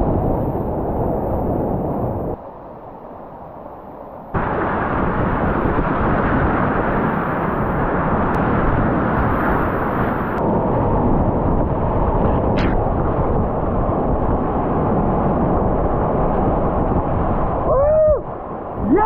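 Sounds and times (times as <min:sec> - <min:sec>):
roar of whitewater rapids: 0:17.3 - 0:19.0
person shouting: 0:17.7 - 0:19.0.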